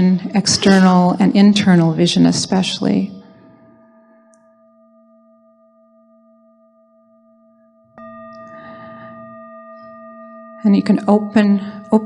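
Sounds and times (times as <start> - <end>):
singing bowl ringing: 3.2 - 12.0.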